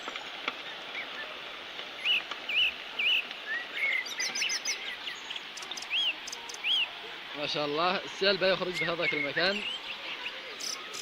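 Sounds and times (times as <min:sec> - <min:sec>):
steady rushing hiss: 0:00.0 - 0:11.0
small bird chirping: 0:03.8 - 0:06.9, 0:09.1 - 0:11.0.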